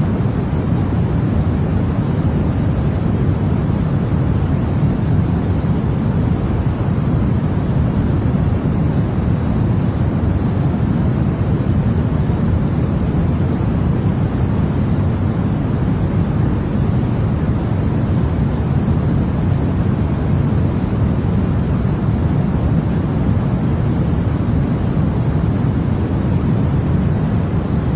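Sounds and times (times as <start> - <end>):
deep white noise: 0.0 - 27.9.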